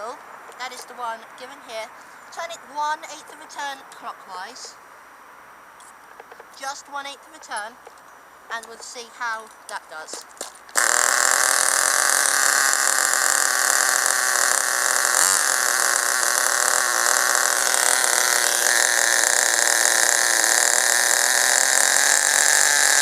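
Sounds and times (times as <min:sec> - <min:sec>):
nitro engine idling high-pitched: 0:10.8 - 0:23.0.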